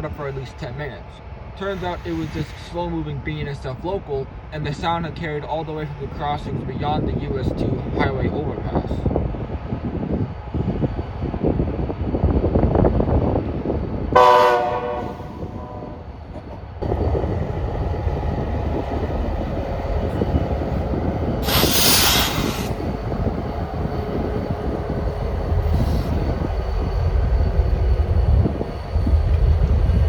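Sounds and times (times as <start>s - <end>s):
diesel locomotive rumble: 0.0s - 30.0s
train horn blast: 14.1s - 16.2s
burst of hiss: 21.4s - 22.8s.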